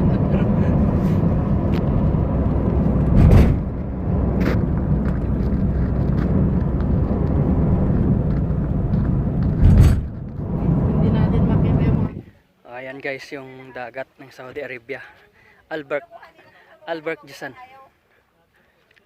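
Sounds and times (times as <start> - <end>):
car road and engine rumble: 0.0 - 12.4.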